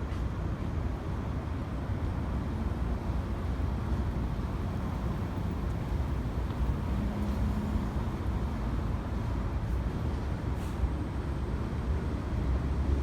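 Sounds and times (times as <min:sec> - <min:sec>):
city road traffic rumble: 0:00.0 - 0:13.0
faint engine hum: 0:00.0 - 0:13.0.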